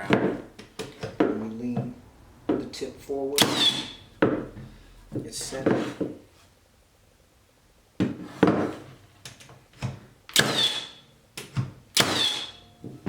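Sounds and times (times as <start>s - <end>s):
tool knocking on wood: 0.0s - 2.7s, 3.4s - 4.7s
nail gun firing: 3.4s - 4.0s, 10.3s - 11.0s, 11.9s - 12.6s.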